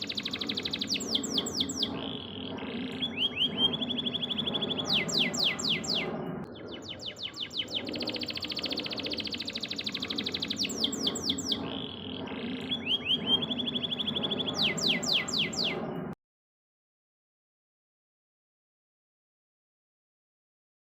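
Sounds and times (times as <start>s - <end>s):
canary singing: 0.0s - 15.9s.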